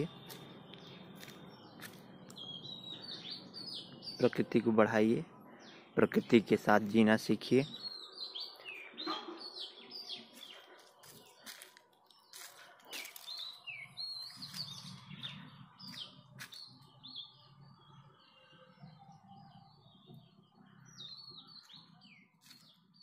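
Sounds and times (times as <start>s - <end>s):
birds chirping and calling: 0.0s - 23.0s.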